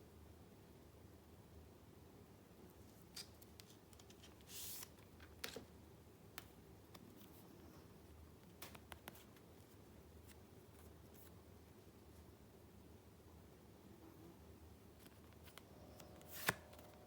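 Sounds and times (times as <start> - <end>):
low room hum: 0.0 - 17.0
paper rustling: 2.8 - 5.7, 15.0 - 17.0.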